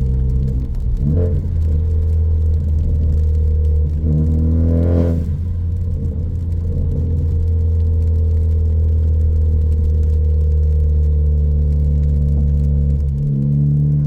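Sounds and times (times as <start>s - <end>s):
car exhaust drone while cruising: 0.0s - 14.0s.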